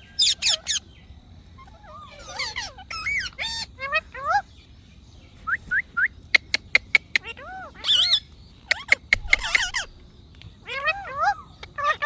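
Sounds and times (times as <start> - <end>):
parrot squawking and chattering: 0.2 - 0.8, 1.6 - 4.5, 6.4 - 9.9, 10.6 - 12.0.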